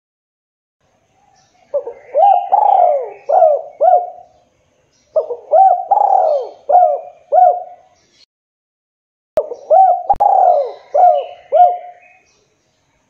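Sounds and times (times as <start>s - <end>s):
dove cooing: 1.7s - 4.4s, 5.1s - 8.0s, 9.4s - 12.2s.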